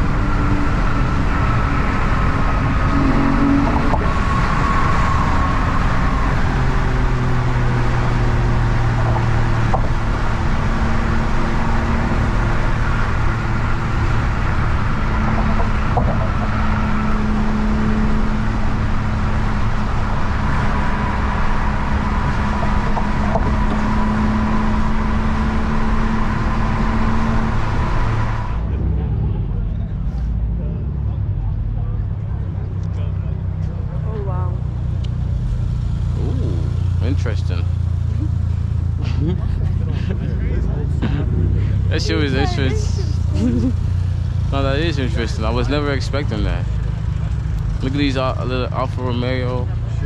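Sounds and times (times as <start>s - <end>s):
car engines rumbling: 0.0s - 50.0s
long even tones: 41.8s - 43.8s.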